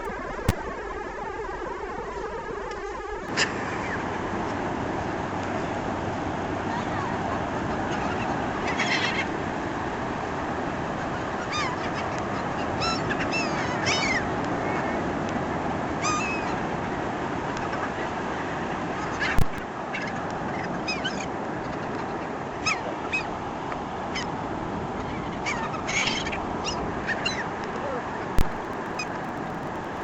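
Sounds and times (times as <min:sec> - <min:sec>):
beach wind: 0:00.0 - 0:30.0
surf: 0:00.0 - 0:30.0
gulls squawking: 0:02.1 - 0:04.5, 0:06.6 - 0:09.4, 0:11.0 - 0:15.0, 0:16.0 - 0:18.2, 0:18.8 - 0:23.4, 0:25.0 - 0:27.5, 0:28.4 - 0:29.4.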